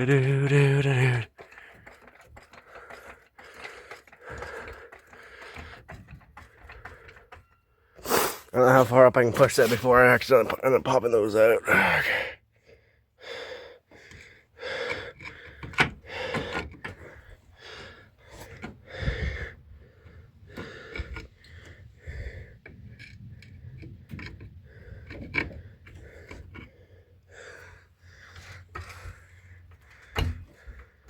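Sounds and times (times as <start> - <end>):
metal parts knocking: 0.0 - 7.7
man breathing heavily: 0.8 - 9.0, 11.6 - 23.4, 24.5 - 31.0.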